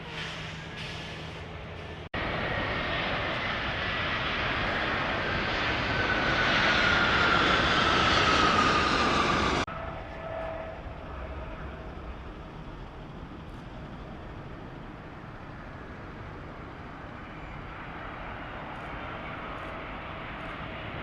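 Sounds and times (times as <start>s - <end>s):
jet engines roaring with whine: 0.0s - 21.0s.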